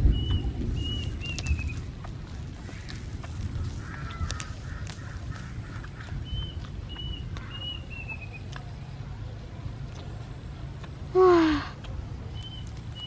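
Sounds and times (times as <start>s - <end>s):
steady low rumble: 0.0s - 13.0s
high whistled bird notes: 0.1s - 1.8s.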